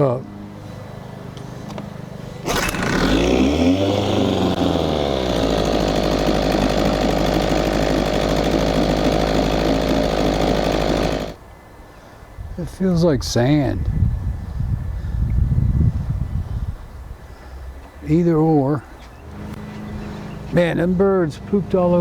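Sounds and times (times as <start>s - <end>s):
outboard motor revving: 2.4s - 11.4s.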